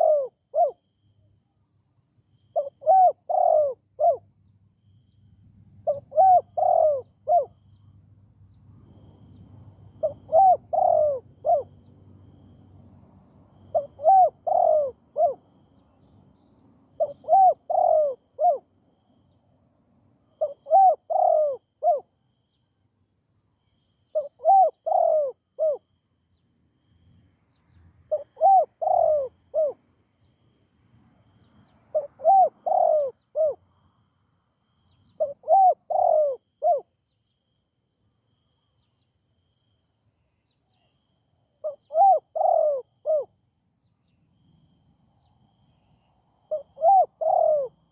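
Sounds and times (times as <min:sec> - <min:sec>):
dove cooing: 0:00.0 - 0:00.8, 0:02.5 - 0:04.2, 0:05.8 - 0:07.6, 0:09.9 - 0:11.9, 0:13.7 - 0:15.5, 0:17.0 - 0:18.7, 0:20.4 - 0:22.1, 0:24.1 - 0:25.8, 0:28.1 - 0:29.9, 0:31.9 - 0:33.6, 0:35.1 - 0:36.9, 0:41.6 - 0:43.3, 0:46.5 - 0:47.9.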